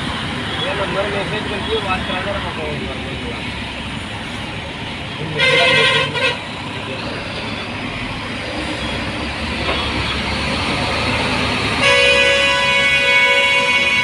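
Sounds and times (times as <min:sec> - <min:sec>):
road noise: 0:00.0 - 0:14.0
truck engine rumble: 0:00.0 - 0:14.0
vehicle horn: 0:05.4 - 0:06.4, 0:11.8 - 0:14.0.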